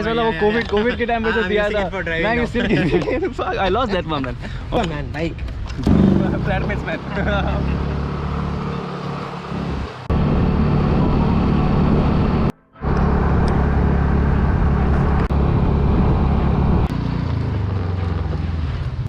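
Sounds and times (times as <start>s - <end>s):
road noise: 0.0s - 19.0s
motorcycle engine running: 5.8s - 19.0s
wind noise: 9.6s - 17.7s.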